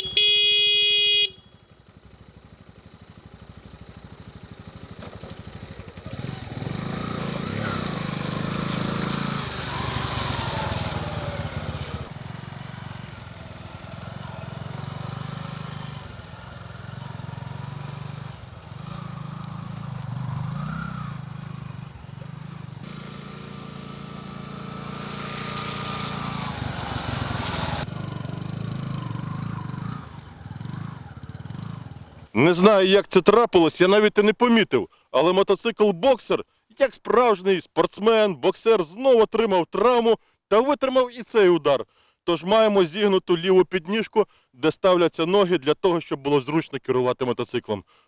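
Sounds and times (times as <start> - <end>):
motorcycle engine running: 0.0 - 32.3.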